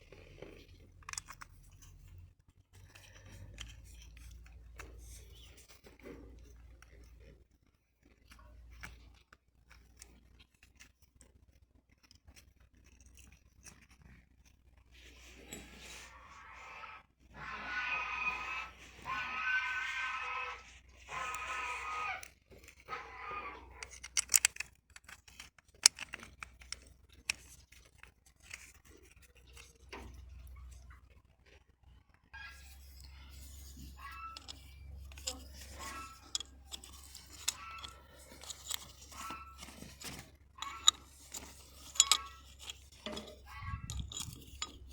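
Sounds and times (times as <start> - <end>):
clicks and taps of small parts: 0.9 - 2.2, 23.7 - 30.8, 32.6 - 44.9.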